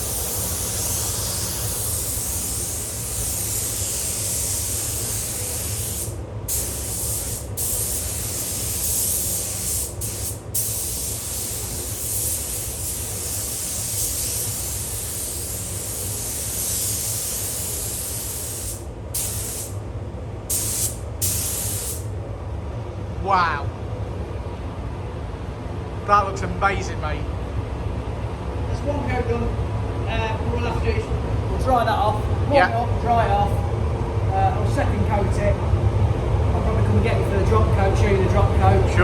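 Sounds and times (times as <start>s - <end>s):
spray gun hissing: 0.0s - 19.8s, 20.5s - 22.1s
low steady hum: 0.0s - 39.0s.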